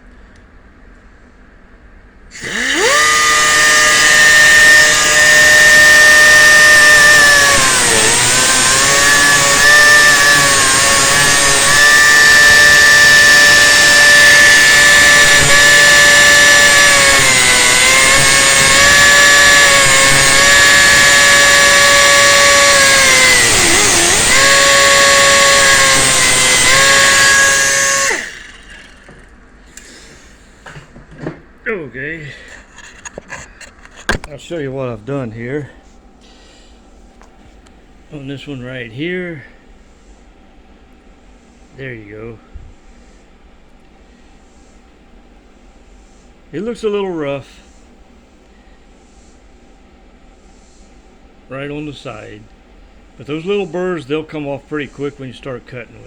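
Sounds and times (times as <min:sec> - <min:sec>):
cutoff wheel grinding chain: 0:02.4 - 0:29.3.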